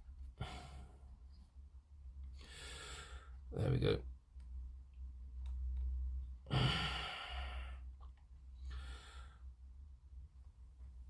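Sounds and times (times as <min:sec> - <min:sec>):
faint small clicks: 0:05.4 - 0:05.9
person sighing: 0:06.5 - 0:07.8.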